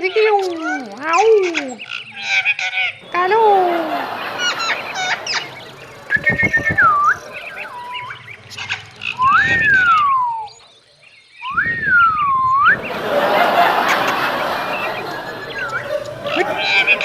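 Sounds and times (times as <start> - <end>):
parrot whistling sliding notes: 3.0 - 10.6, 11.4 - 17.0.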